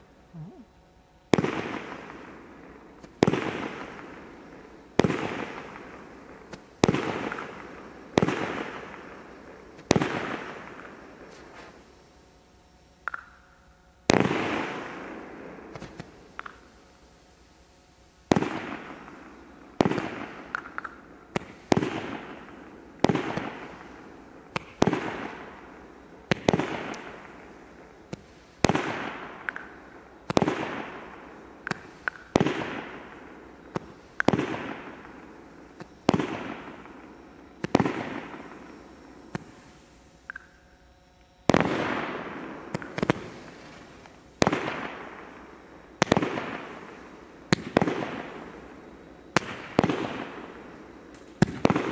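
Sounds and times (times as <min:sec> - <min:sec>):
fireworks bangs and crackle: 0:01.3 - 0:11.8, 0:14.1 - 0:16.7, 0:18.3 - 0:39.9, 0:41.5 - 0:51.9.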